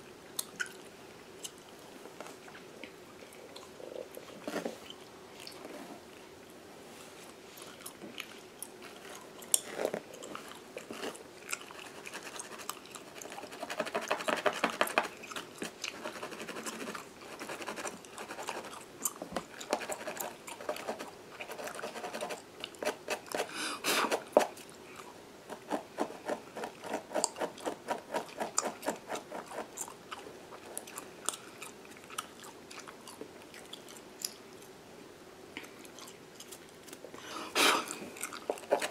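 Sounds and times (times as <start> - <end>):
gum chewing: 7.6 - 14.3, 15.0 - 22.0, 26.6 - 34.7, 35.6 - 38.9.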